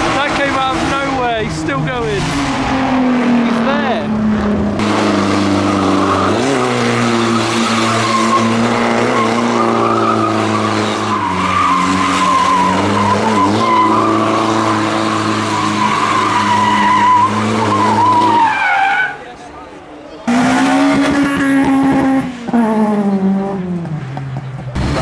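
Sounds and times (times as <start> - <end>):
car engine at high revs: 0.0 - 18.7, 20.2 - 25.0
tyres squealing: 5.7 - 19.4.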